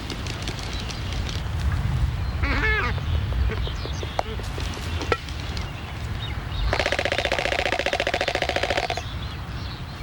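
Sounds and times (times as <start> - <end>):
albatross bill clacks: 0.0 - 1.7, 3.5 - 5.8, 6.7 - 9.0.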